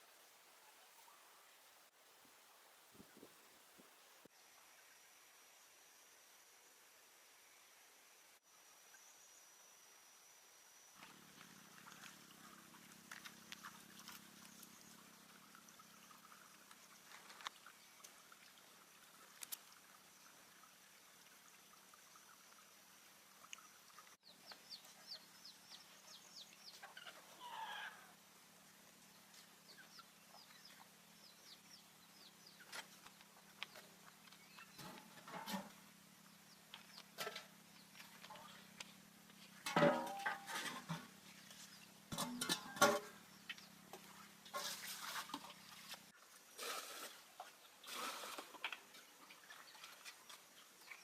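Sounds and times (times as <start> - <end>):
chickens clucking: 26.7 - 27.5.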